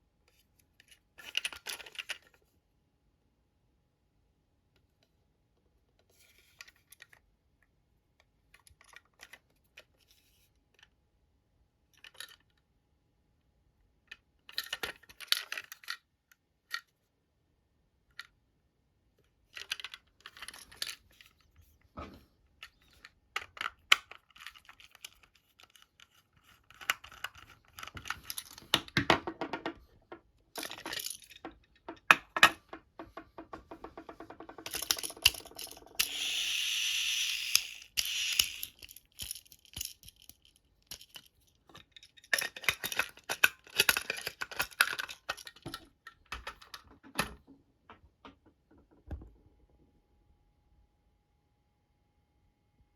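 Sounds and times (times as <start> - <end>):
plastic parts clicking and knocking: 0.8 - 2.4, 14.1 - 16.9, 19.2 - 49.4.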